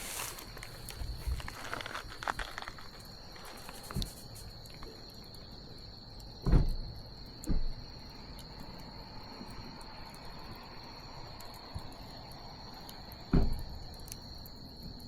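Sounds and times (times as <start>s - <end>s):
bonfire crackling and popping: 0.0s - 5.5s
crickets trilling: 0.0s - 15.0s.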